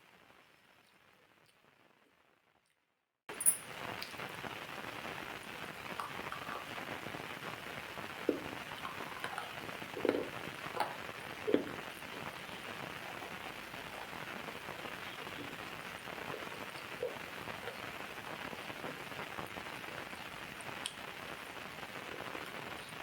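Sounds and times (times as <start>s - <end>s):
steady rain: 3.3s - 23.0s
water drips: 5.0s - 19.6s.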